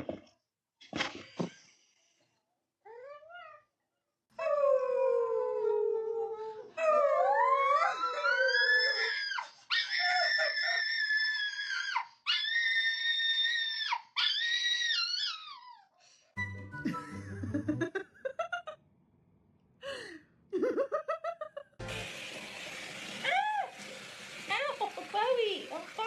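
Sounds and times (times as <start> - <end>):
dog howling: 4.4 - 15.6.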